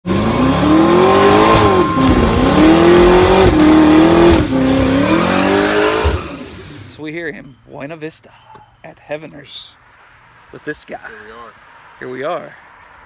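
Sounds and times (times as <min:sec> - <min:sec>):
car engine accelerating: 0:00.0 - 0:07.0.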